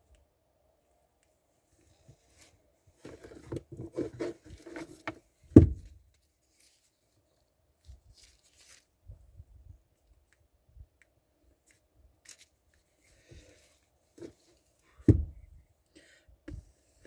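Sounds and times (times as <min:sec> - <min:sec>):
loud thump: 0:05.6 - 0:05.9, 0:15.1 - 0:15.4.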